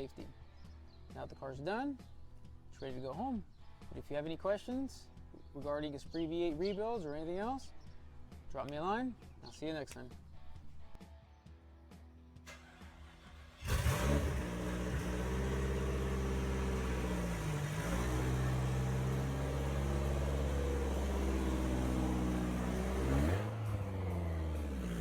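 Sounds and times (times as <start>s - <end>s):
car engine starting and running: 12.4s - 25.0s.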